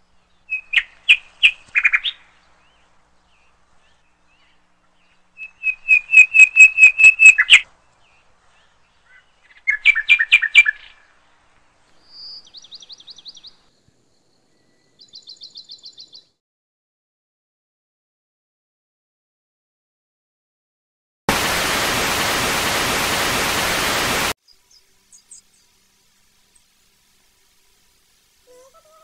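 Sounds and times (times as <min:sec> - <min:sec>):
bird chirping: 0:00.0 - 0:11.2, 0:11.8 - 0:16.4, 0:24.4 - 0:26.9.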